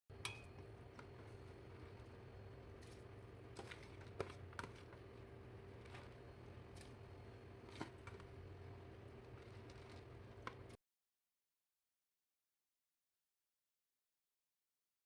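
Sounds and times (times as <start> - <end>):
steady low hum: 0.1 - 10.8.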